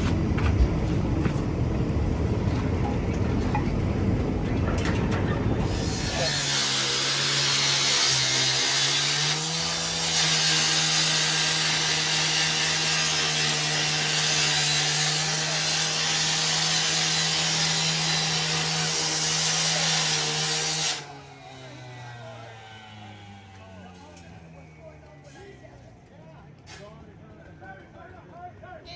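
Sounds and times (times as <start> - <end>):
engine-driven machine hissing: 21.6 - 24.4.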